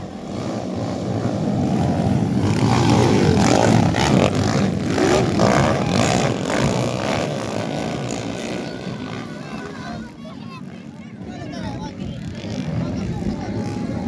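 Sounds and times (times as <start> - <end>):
motorcycle engines revving past: 0.0 - 14.0.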